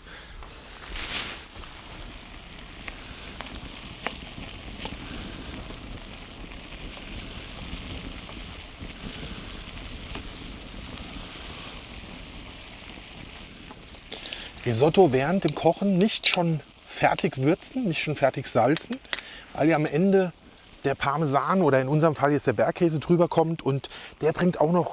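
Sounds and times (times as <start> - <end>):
fire crackling and popping: 0.0 - 24.9
pan sizzling: 0.1 - 22.6.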